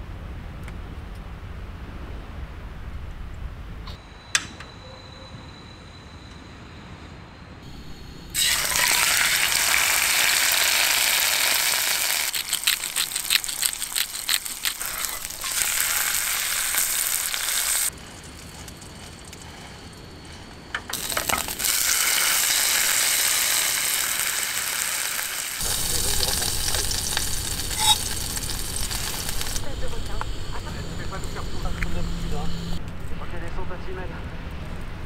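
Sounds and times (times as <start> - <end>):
food frying sizzle: 8.3 - 31.4.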